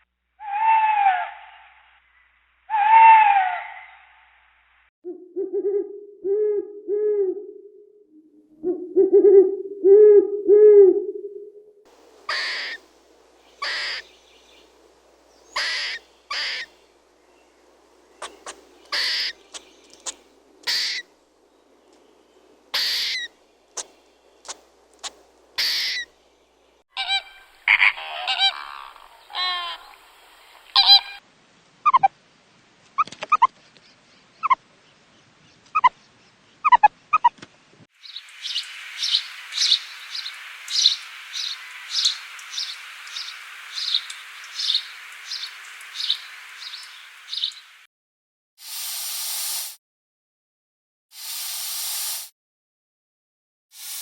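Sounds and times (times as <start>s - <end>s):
buzzing insect chorus with chirps: 11.9s - 26.1s, 38.0s - 47.8s
short loud animal calls: 12.3s - 12.8s, 13.6s - 14.0s, 18.2s - 19.4s.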